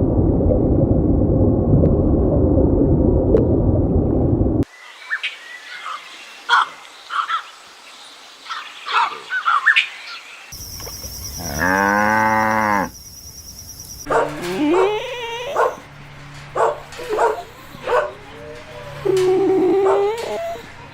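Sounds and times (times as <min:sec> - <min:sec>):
animal call: 0:10.6 - 0:20.9
cow mooing: 0:11.4 - 0:13.0, 0:14.1 - 0:16.0.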